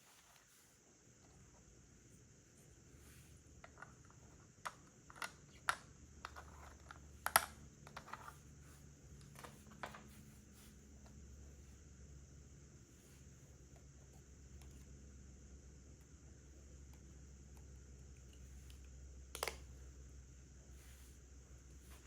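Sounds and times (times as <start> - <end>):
plastic bricks clicking together: 3.6 - 8.4.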